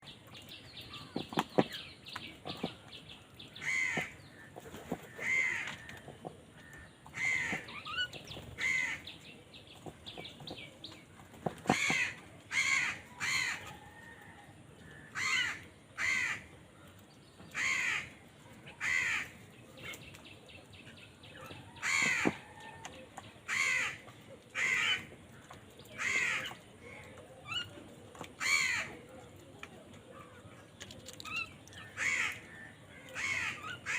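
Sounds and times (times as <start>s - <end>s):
crows cawing: 3.6s - 4.5s, 5.1s - 6.0s, 6.6s - 7.7s, 8.6s - 9.1s, 11.7s - 13.8s, 15.0s - 16.5s, 17.6s - 18.2s, 18.8s - 19.4s, 21.8s - 22.4s, 23.5s - 24.0s, 24.6s - 25.1s, 28.4s - 28.9s, 32.0s - 33.9s.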